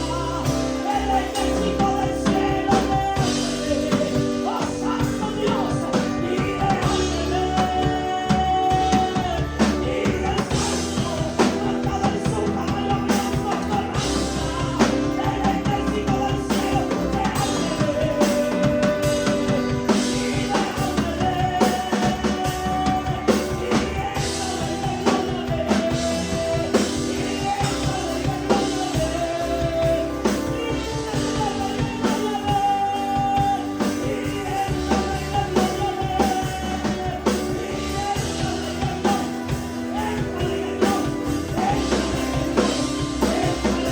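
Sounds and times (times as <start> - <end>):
live band playing upbeat music: 0.0 - 43.9.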